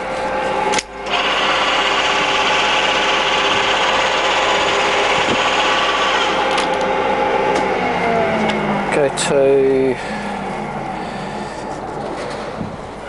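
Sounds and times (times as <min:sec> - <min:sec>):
lathe gear whine and rattle: 0:00.0 - 0:13.0
lathe drive clicks: 0:00.7 - 0:06.9.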